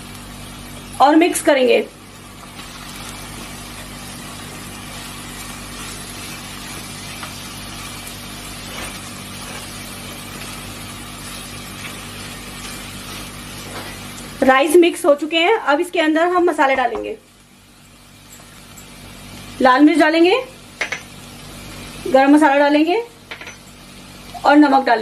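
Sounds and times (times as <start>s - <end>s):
food sizzling in oil: 0.0s - 25.0s
spatula scraping: 8.6s - 9.9s.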